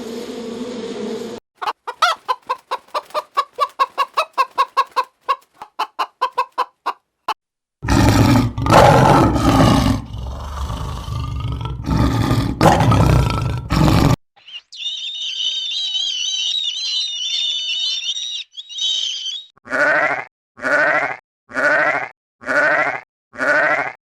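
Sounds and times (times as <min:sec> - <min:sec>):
chicken clucking: 0:01.6 - 0:07.1
loud rough animal call: 0:07.8 - 0:14.2.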